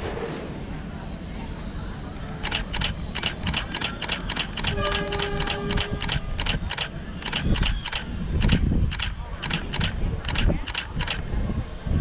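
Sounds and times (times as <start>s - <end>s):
low rumble of freight wagons: 0.0s - 12.0s
wheels clacking over rail joints: 2.7s - 11.2s.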